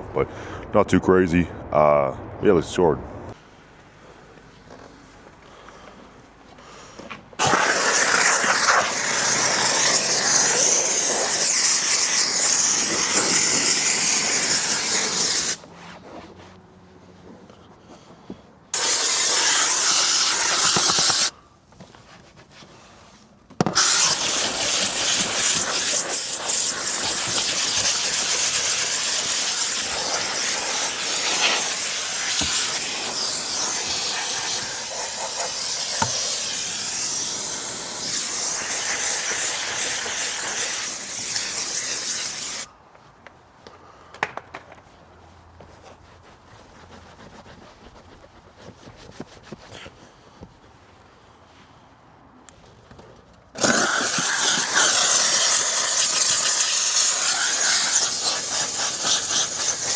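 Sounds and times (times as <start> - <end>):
car detailing air tool rushing: 7.4 - 15.6, 18.8 - 21.4, 23.6 - 42.7, 53.6 - 59.9.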